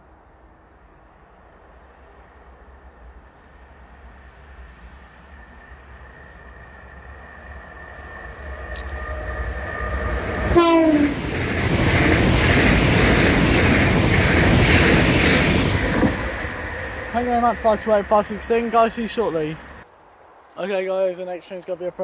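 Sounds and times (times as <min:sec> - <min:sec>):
train rushing past: 0:00.0 - 0:19.9
train horn blast: 0:09.0 - 0:11.4.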